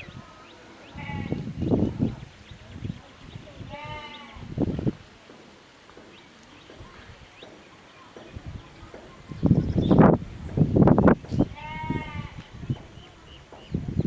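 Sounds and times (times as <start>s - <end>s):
farm animal bleating: 0.9s - 1.4s, 3.6s - 4.4s, 11.4s - 12.5s.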